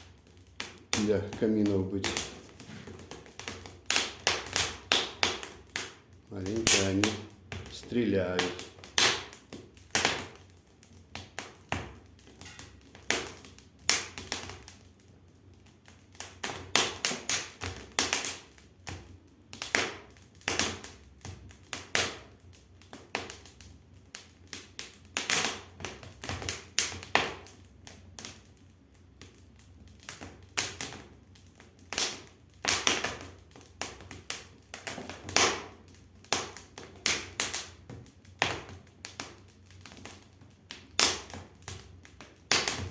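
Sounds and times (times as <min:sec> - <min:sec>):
sharp pops and snaps: 0:00.0 - 0:42.9
wood fire crackling: 0:00.0 - 0:42.9.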